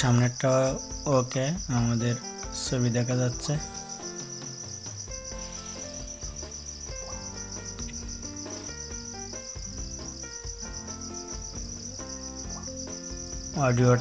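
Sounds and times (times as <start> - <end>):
crickets chirring: 0.0 - 14.0
instrumental music of held notes: 0.0 - 14.0.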